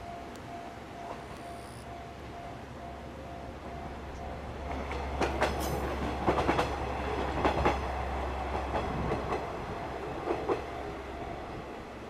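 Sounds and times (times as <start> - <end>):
train low hum: 0.0 - 12.0
wheels clicking over rail joints: 4.6 - 7.9.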